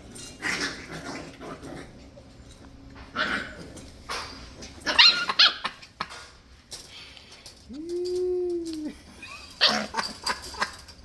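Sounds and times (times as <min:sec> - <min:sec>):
puppy yelping: 0:04.8 - 0:05.8, 0:09.3 - 0:10.7
puppy whining: 0:04.9 - 0:05.8, 0:07.7 - 0:10.7.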